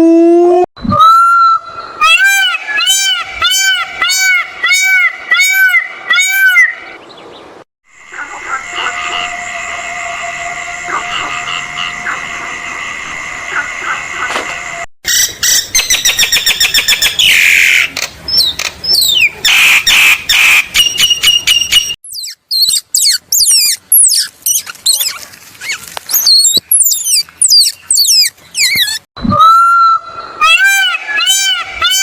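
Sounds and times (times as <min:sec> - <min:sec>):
animal chirps and clicks: 0:21.0 - 0:29.0
high animal squeaks: 0:22.0 - 0:29.1.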